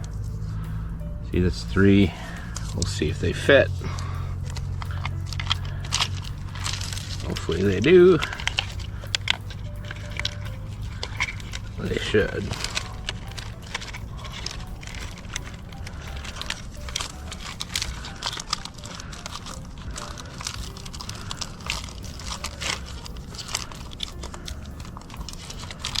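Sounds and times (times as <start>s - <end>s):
hands handling plastic parts: 0.0s - 26.0s
low rumble: 0.0s - 26.0s.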